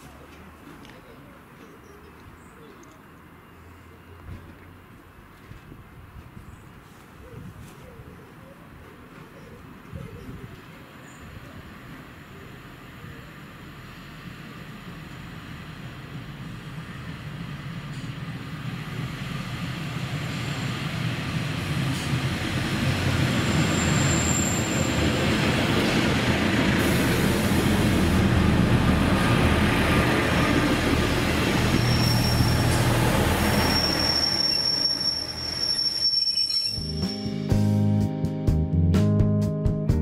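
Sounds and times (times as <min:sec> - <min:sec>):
train running past: 0:10.4 - 0:37.7
high wheel squeal: 0:23.4 - 0:25.2, 0:31.5 - 0:37.3.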